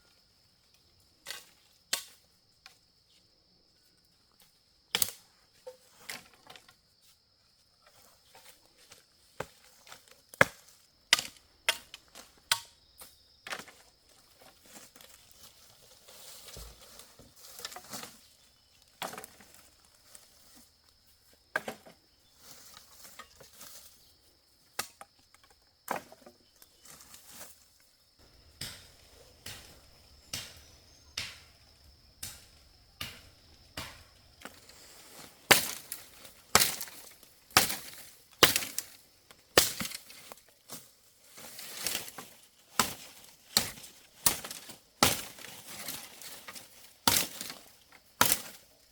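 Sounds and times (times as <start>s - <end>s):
firewood being chopped: 10.3s - 12.8s, 28.2s - 34.8s, 35.4s - 40.2s, 42.8s - 45.5s, 47.0s - 47.6s, 48.2s - 48.6s
high insect drone: 26.5s - 39.2s.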